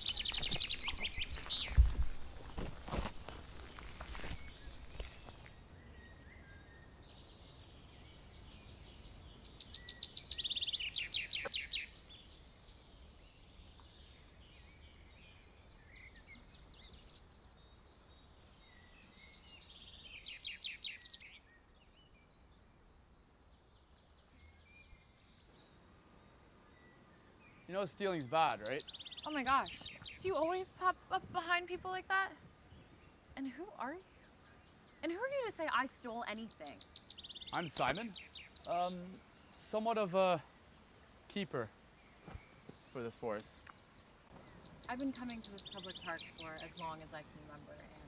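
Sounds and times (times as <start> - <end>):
footsteps crunching on stones: 0.0 - 5.7, 42.2 - 42.9
woodland birds singing: 0.0 - 48.0.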